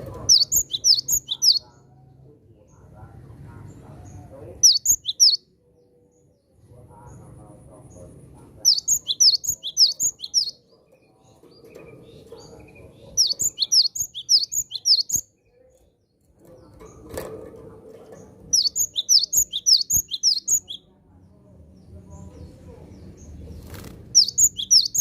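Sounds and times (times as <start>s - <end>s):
bird high sharp chirps: 0.3s - 1.7s, 4.6s - 5.5s, 8.7s - 10.6s, 12.1s - 15.3s, 18.5s - 20.9s, 23.6s - 25.0s.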